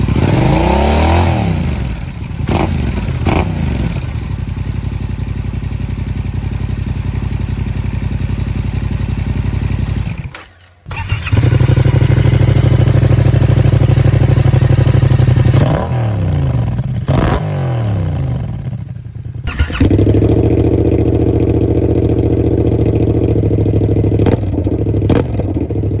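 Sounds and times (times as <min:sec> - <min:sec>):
motorcycle engine idling: 0:00.0 - 0:15.7, 0:18.1 - 0:26.0
engine throttle blips: 0:08.4 - 0:17.4, 0:19.4 - 0:25.9.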